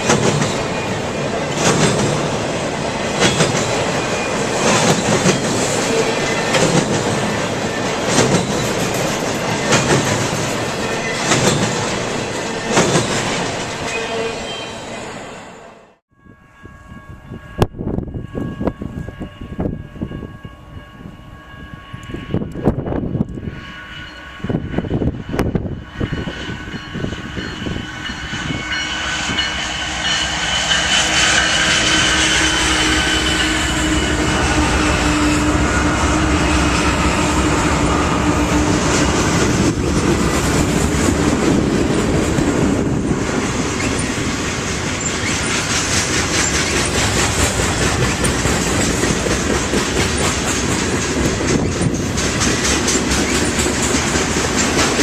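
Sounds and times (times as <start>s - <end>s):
train wheels clattering over rails: 0.0s - 14.0s, 29.2s - 55.0s.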